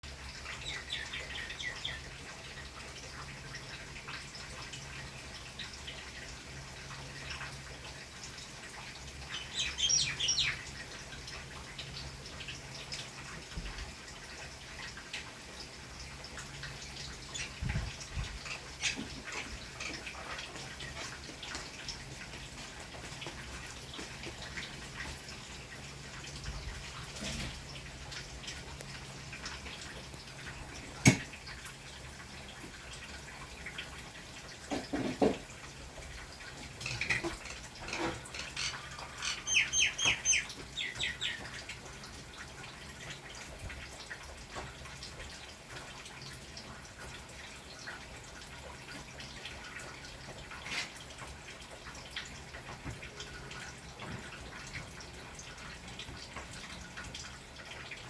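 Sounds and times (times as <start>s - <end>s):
birds chirping: 0.4s - 2.2s, 9.2s - 10.8s, 36.8s - 41.6s.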